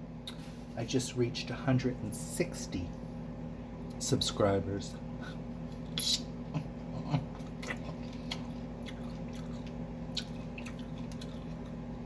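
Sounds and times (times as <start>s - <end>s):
steady low hum: 0.0s - 12.0s
person chewing pizza: 5.2s - 12.0s.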